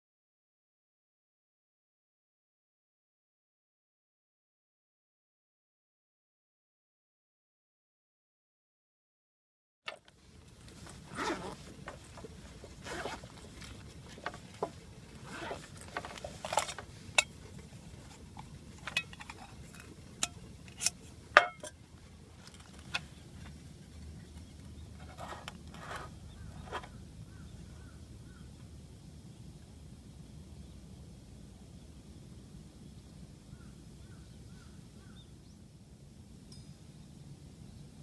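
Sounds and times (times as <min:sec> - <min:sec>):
handling rustles and scrapes: 0:09.9 - 0:23.7, 0:24.9 - 0:27.0.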